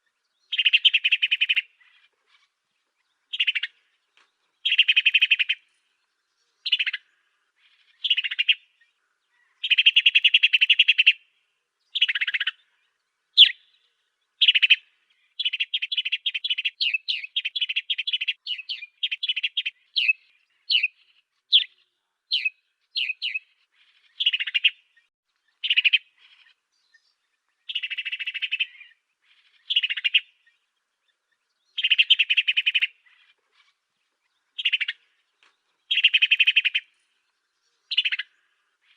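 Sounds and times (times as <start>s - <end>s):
sparrow sharp chirps: 0.0s - 38.9s
sparrow buzzy chattering: 0.5s - 2.5s, 27.7s - 30.4s, 31.8s - 33.8s, 34.5s - 35.2s, 35.9s - 36.9s, 37.9s - 38.9s.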